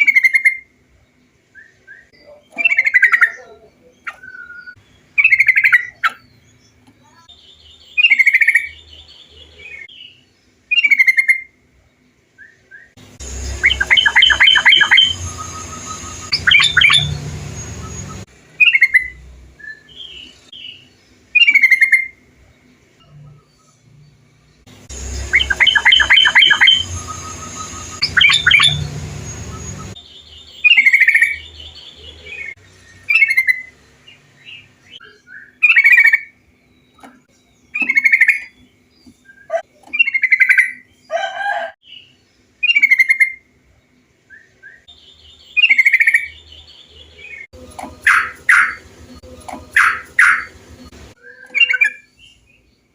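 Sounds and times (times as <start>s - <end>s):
bird calling bubbly phrases: 2.1s - 6.2s, 13.6s - 17.2s, 25.3s - 28.9s
bird chattering notes: 13.2s - 19.2s, 24.8s - 30.0s, 37.8s - 38.6s, 47.6s - 52.1s.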